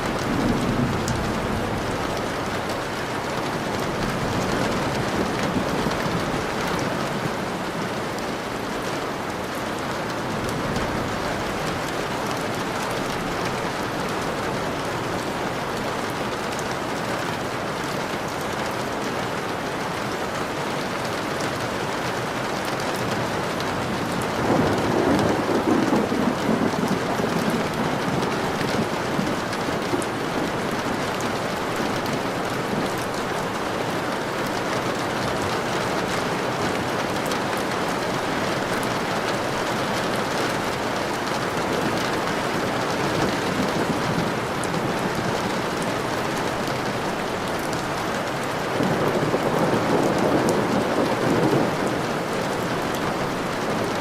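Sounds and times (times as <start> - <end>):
thunder rumble: 0.0 - 8.4, 23.8 - 33.6, 34.5 - 54.0
heavy rain falling: 0.0 - 54.0.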